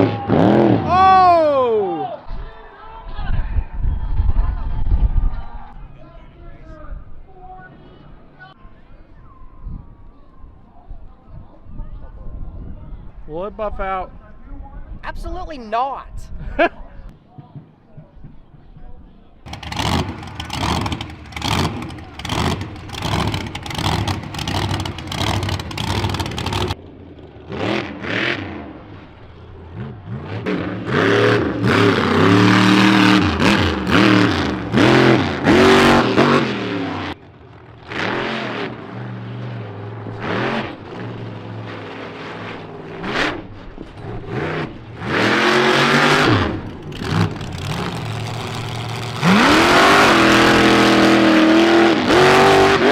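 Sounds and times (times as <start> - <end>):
truck engine revving: 19.5 - 52.9.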